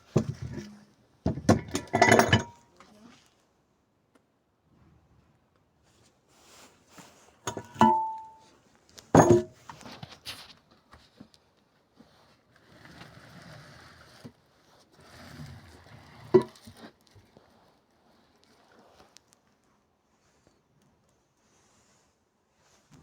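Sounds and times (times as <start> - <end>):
metal parts clanking: 1.5 - 2.6, 7.5 - 8.4, 9.2 - 9.5
rustling and shuffling: 5.9 - 12.5, 16.6 - 23.0.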